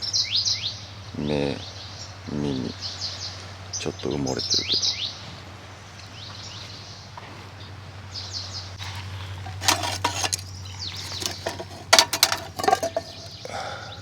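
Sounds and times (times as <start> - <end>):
birds chirping: 8.2 - 14.0
metal cookware clinking: 8.8 - 13.4.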